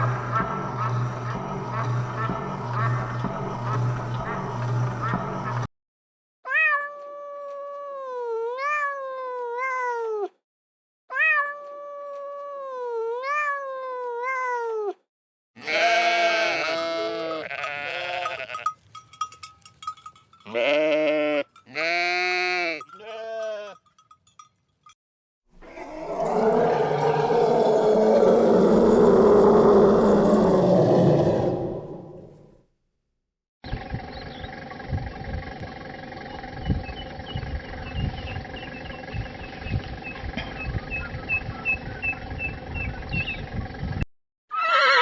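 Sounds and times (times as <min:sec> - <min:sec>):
bleat-like calls: 0:15.6 - 0:18.7, 0:20.5 - 0:23.8, 0:44.5 - 0:45.0
farm animals calling: 0:15.6 - 0:18.8, 0:20.5 - 0:23.8, 0:25.6 - 0:32.4, 0:44.5 - 0:45.0.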